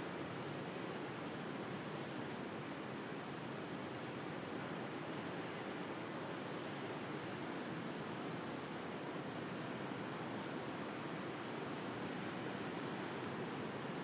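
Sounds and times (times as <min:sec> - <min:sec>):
faint wood fire crackles: 0:00.1 - 0:14.0.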